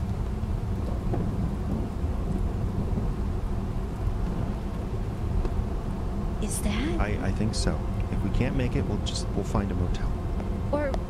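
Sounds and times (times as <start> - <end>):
car interior engine and road noise: 0.0 - 11.0.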